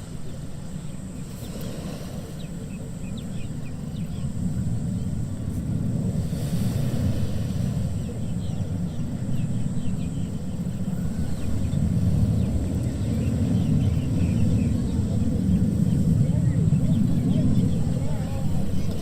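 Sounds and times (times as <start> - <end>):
ocean waves breaking on beach: 0.0 - 9.7.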